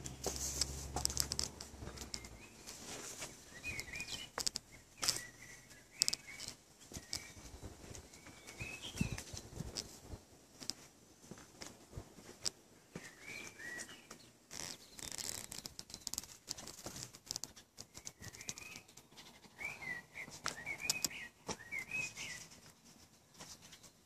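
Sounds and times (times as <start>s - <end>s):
faint clicks: 0.0s - 2.4s, 6.0s - 7.3s
birds chirping: 0.0s - 10.2s, 12.8s - 22.6s
rustling: 0.0s - 24.0s.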